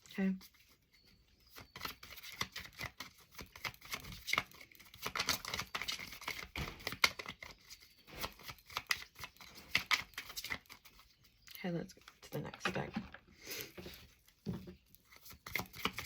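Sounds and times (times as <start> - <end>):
cards being shuffled: 1.6 - 11.0, 15.0 - 16.0.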